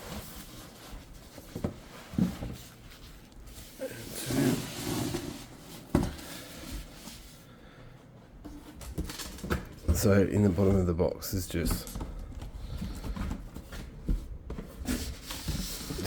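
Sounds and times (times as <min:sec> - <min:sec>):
foam packing rustling: 0:08.7 - 0:16.0.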